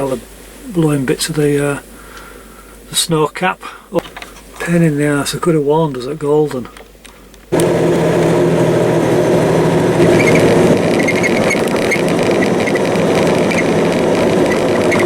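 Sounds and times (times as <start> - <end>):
diesel truck engine running: 7.5 - 15.0
faint high squeaks: 10.0 - 15.0.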